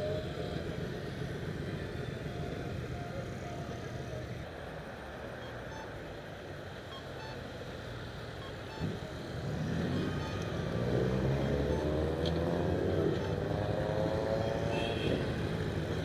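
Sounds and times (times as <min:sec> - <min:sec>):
motorcycle engines running: 0:07.8 - 0:16.0
motorcycle approaching: 0:08.8 - 0:16.0.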